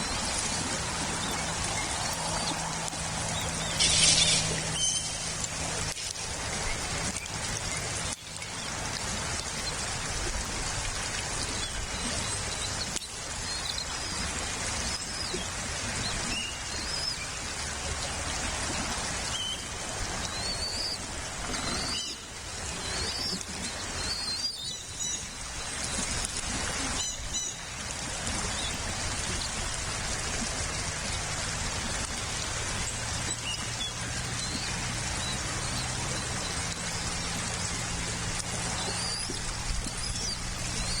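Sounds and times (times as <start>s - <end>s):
birds chirping: 0.0s - 6.0s, 33.1s - 41.0s
steady rain: 0.0s - 41.0s.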